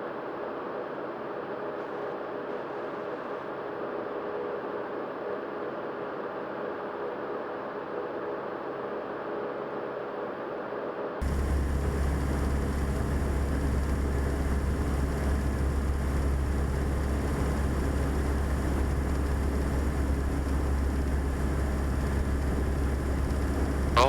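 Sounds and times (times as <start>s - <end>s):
propeller plane engine droning: 11.2s - 24.0s.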